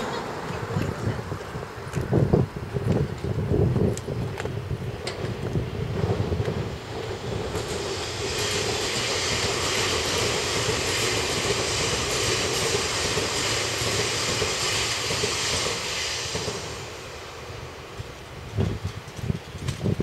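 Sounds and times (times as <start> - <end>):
electric train rushing hiss: 4.6 - 19.3.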